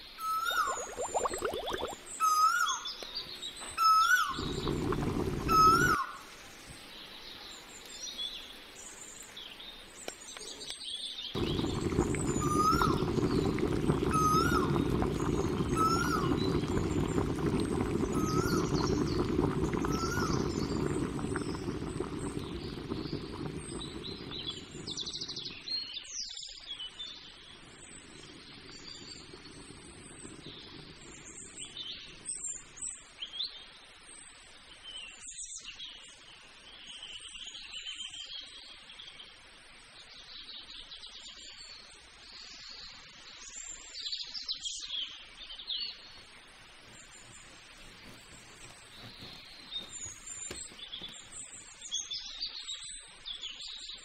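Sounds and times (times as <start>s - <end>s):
birds chirping: 0.3s - 6.2s, 11.3s - 25.9s, 46.8s - 52.4s
rising whistle: 3.9s - 6.0s, 11.4s - 25.1s
low steady rumble: 11.4s - 25.6s.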